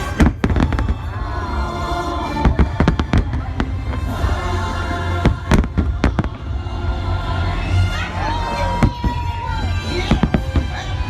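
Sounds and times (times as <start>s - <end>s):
fireworks bangs: 0.0s - 1.3s, 2.4s - 4.4s, 5.2s - 6.6s
music playing: 0.0s - 11.0s.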